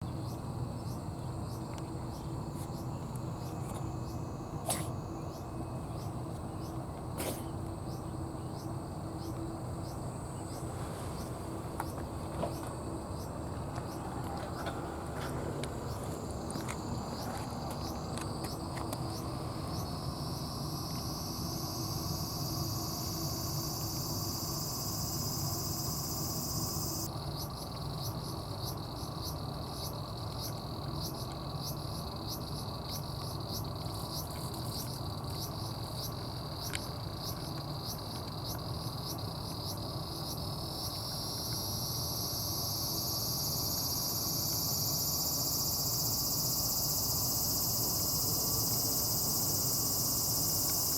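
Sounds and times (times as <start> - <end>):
insects ticking and droning: 0.0 - 50.9.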